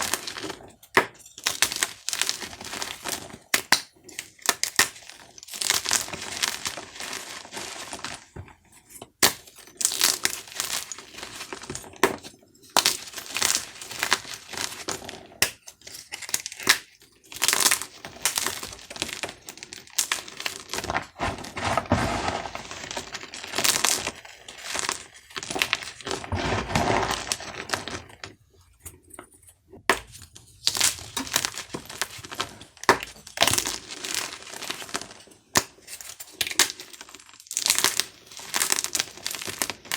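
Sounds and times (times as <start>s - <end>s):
chalk crunching by hand: 20.0s - 28.1s.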